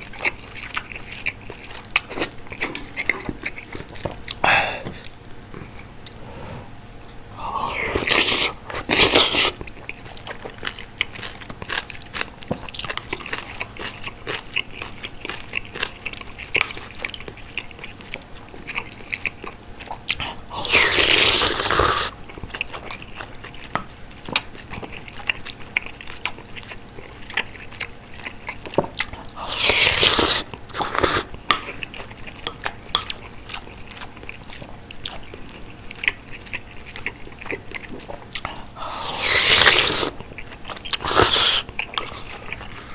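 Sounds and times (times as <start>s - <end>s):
close chewing with mouth smacks: 0.0s - 4.4s, 7.8s - 42.9s.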